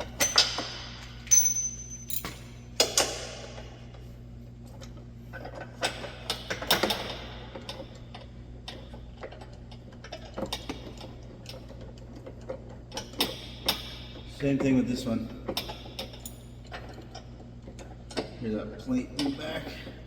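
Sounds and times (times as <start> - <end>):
steady low hum: 0.0 - 20.0
hand tools clinking on metal: 1.3 - 2.6.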